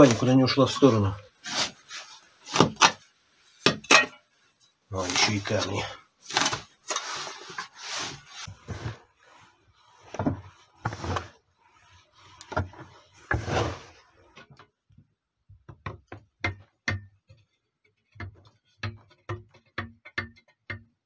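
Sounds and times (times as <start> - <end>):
shovel scraping sandy soil: 0.1 - 2.8, 13.2 - 14.1.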